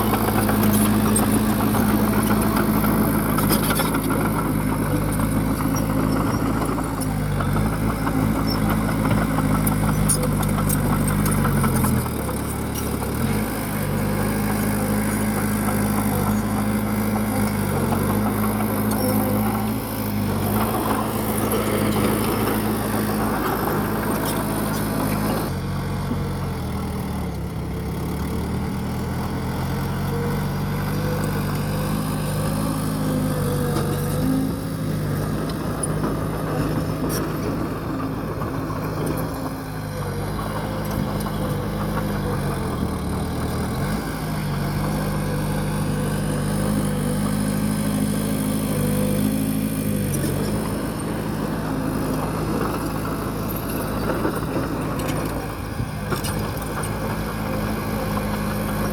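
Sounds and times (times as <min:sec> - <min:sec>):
bulldozer diesel engine running: 0:00.0 - 0:58.9.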